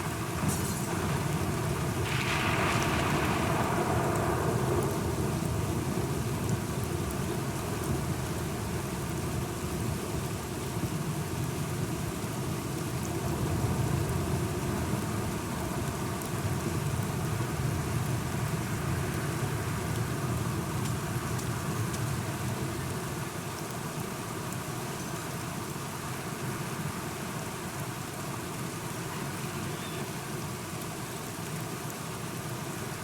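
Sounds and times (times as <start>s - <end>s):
rain on hard surfaces: 0.0s - 33.0s
low rumble of thunder: 0.1s - 7.4s.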